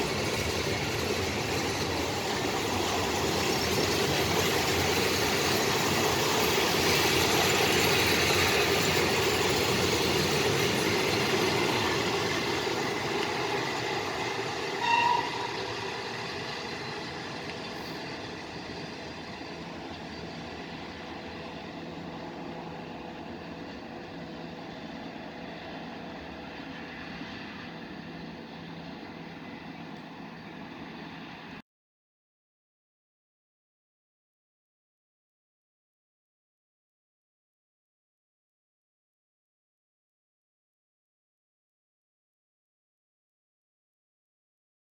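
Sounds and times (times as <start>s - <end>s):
train rolling past on rails: 0.0s - 31.6s
brief high tone: 14.8s - 15.5s.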